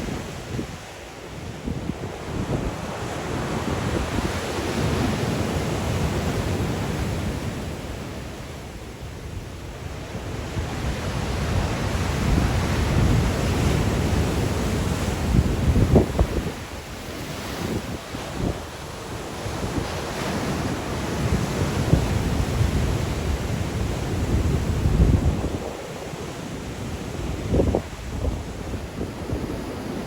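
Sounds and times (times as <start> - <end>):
wind buffeting microphone: 9.0 - 30.0.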